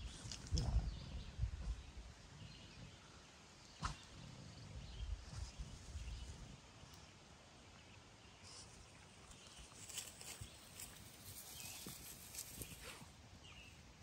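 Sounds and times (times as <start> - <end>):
wind buffeting microphone: 0.0 - 2.1.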